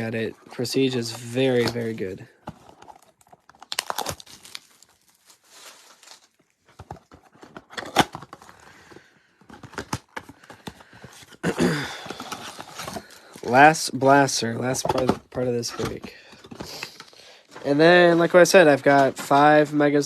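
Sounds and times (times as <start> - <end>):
card wrappers crinkling: 0.7 - 14.0.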